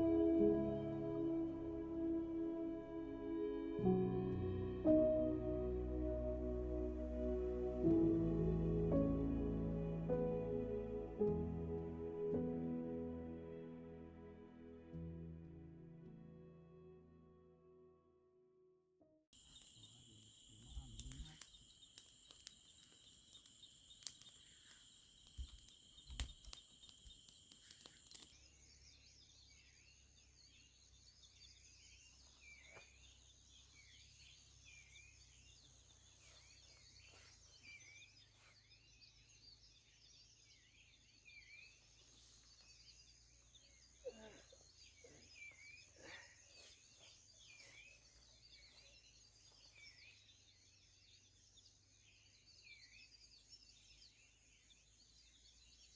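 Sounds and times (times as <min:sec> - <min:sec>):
soft chirps: 0:19.4 - 0:28.8.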